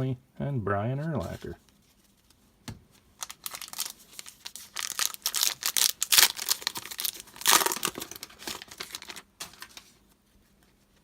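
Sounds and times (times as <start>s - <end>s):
foil wrapper tearing and crinkling: 3.2s - 9.8s.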